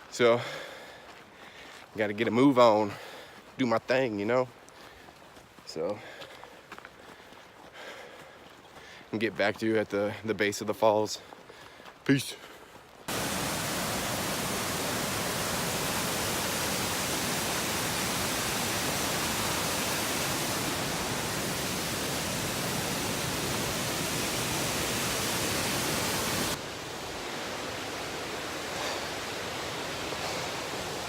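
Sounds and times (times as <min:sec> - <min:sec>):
waterfall rushing: 0:13.1 - 0:31.0.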